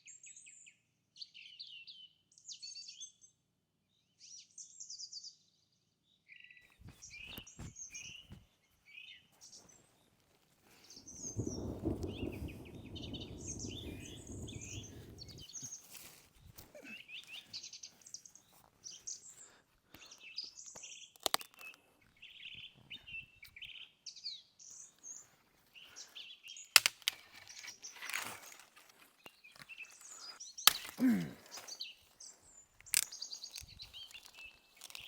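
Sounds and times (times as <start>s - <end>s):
birds chirping and calling: 10.8s - 16.0s, 16.6s - 35.0s.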